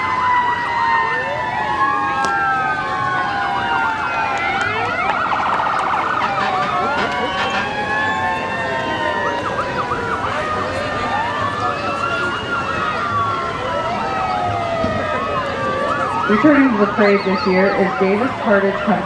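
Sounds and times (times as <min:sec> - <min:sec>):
emergency vehicle sirens: 0:00.0 - 0:19.0.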